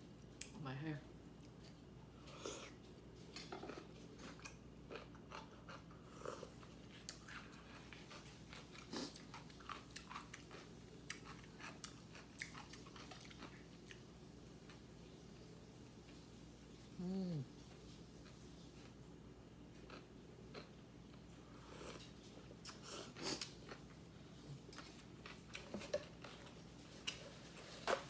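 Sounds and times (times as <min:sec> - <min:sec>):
person chewing food: 0:01.3 - 0:14.9, 0:19.7 - 0:28.0.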